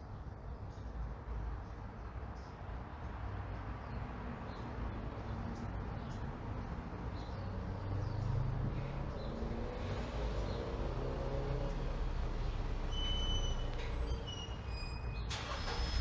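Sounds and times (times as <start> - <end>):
low traffic rumble: 0.0 - 16.0
vehicle engine approaching: 5.6 - 16.0
faint bird chirps: 11.7 - 15.3.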